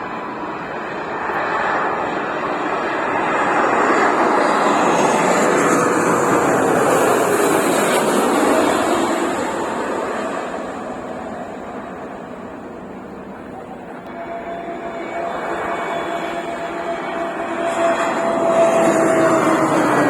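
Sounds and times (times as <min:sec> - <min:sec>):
jet airliner engine rush: 0:00.0 - 0:20.0
faint whine sliding down: 0:05.0 - 0:20.0.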